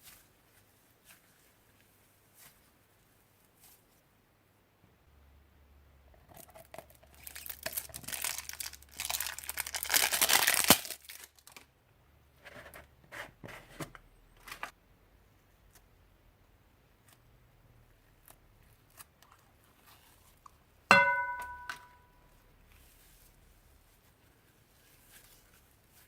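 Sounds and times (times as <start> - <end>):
thin plastic crinkling and tearing: 6.2 - 11.7, 22.7 - 26.0.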